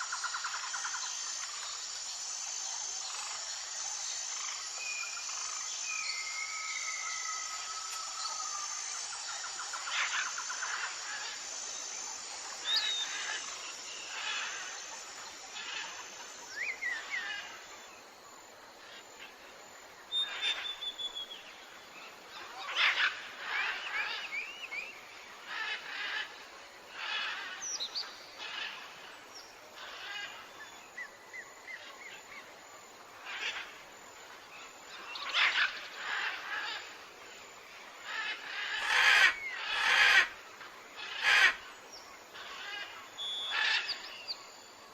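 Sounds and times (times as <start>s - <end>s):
birds chirping and whistling: 43.2s - 44.4s.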